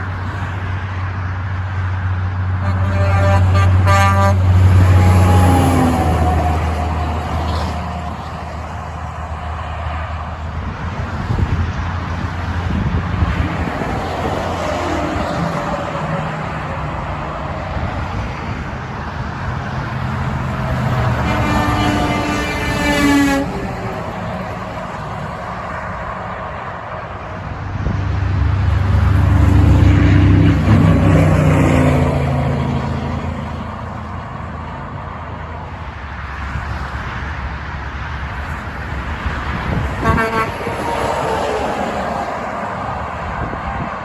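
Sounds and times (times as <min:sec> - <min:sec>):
heavy truck passing: 0:00.0 - 0:44.0
truck horn toot: 0:02.6 - 0:08.2, 0:20.8 - 0:24.4, 0:39.8 - 0:41.6.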